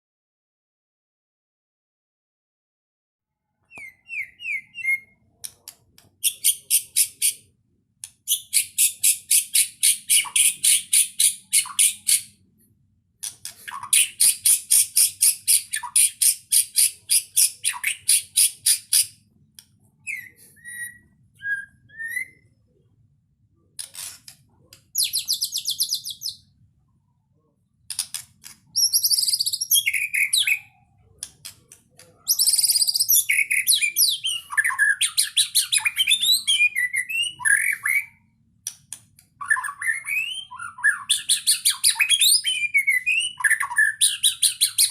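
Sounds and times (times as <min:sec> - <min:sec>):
songbird singing varied phrases: 0:03.6 - 0:07.5, 0:08.3 - 0:12.4, 0:13.7 - 0:19.2, 0:19.9 - 0:22.6, 0:23.6 - 0:26.6, 0:27.9 - 0:31.3, 0:32.2 - 0:44.9.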